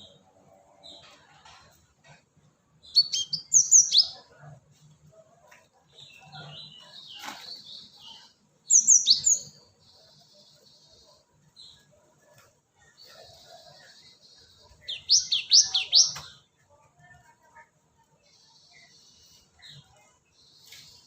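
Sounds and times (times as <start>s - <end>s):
soft bird chattering: 13.2s - 16.4s.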